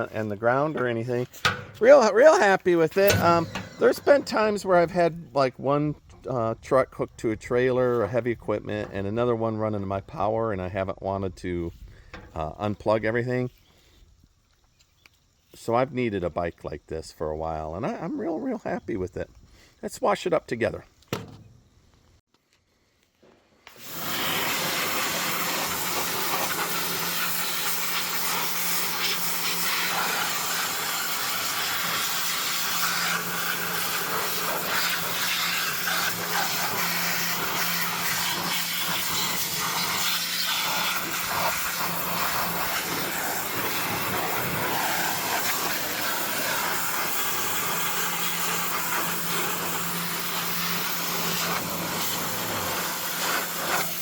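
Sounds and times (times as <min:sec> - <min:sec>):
pressure washer spraying water: 0:01.2 - 0:04.7, 0:23.7 - 0:54.0.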